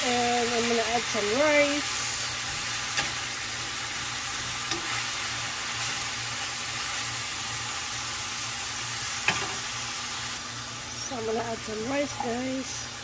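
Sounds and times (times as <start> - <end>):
meat sizzling in a frying pan: 0.0 - 13.0.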